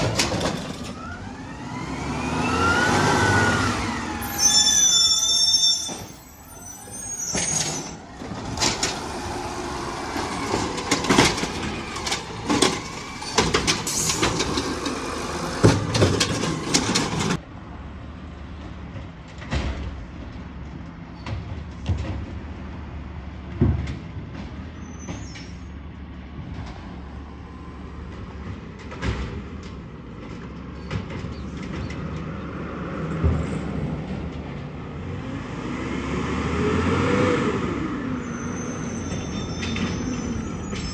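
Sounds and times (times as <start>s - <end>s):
loud clanks and bangs: 0.0s - 2.9s, 7.3s - 17.4s
garbage truck engine: 0.0s - 40.9s.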